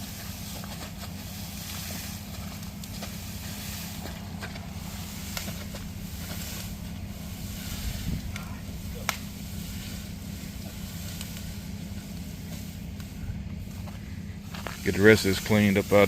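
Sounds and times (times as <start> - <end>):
vehicle engine idling: 0.0 - 16.0
sharp snaps: 5.2 - 5.8, 8.3 - 9.4.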